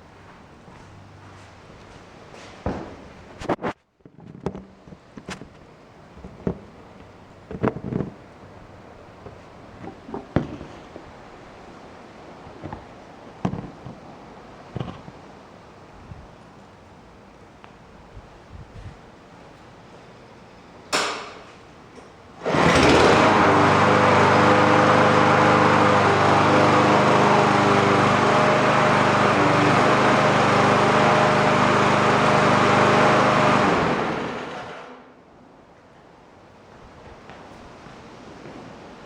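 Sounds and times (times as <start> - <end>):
lawn mower engine running: 22.4 - 35.0
pull-start noise: 22.4 - 35.0.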